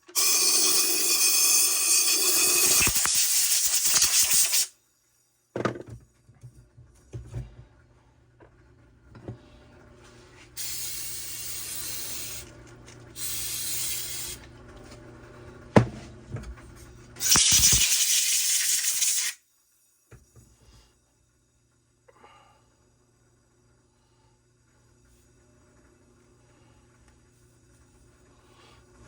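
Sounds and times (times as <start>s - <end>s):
compressed air blasts: 2.6s - 4.7s, 10.6s - 12.4s, 13.2s - 14.4s, 17.2s - 19.4s.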